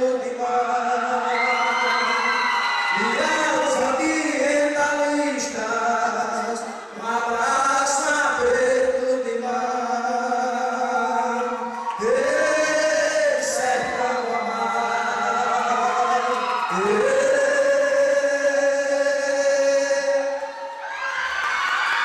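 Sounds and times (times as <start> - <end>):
group of voices singing: 11.0 - 20.5.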